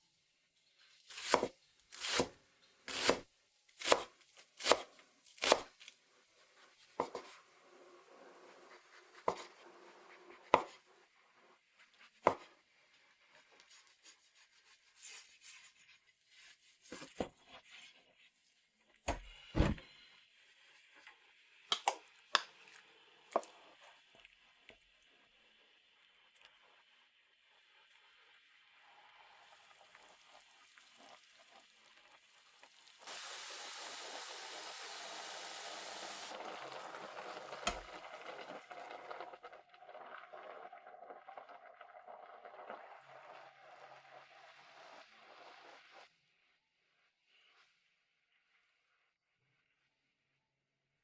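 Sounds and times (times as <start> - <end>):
knife chopping on cutting board: 1.1 - 2.3, 2.9 - 3.2, 3.8 - 5.7, 7.0 - 7.3, 9.3 - 9.6, 10.5 - 10.8
heavy thud: 19.6 - 19.8.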